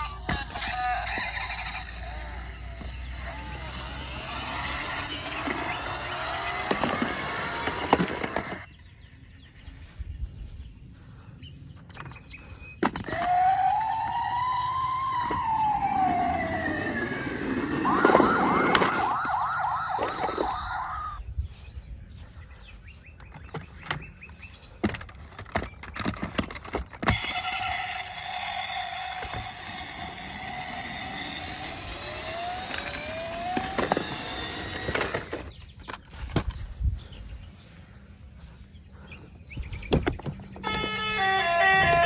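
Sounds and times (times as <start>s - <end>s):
plastic toys clicking and knocking: 0.0s - 3.6s, 4.3s - 8.7s, 24.8s - 36.6s
toy car electronic siren: 0.0s - 8.7s, 13.0s - 21.2s, 26.6s - 35.5s, 40.6s - 42.0s.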